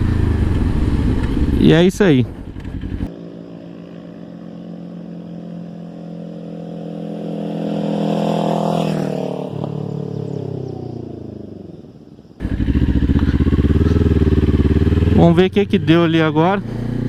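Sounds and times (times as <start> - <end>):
motorcycle passing by: 0.0 - 17.0.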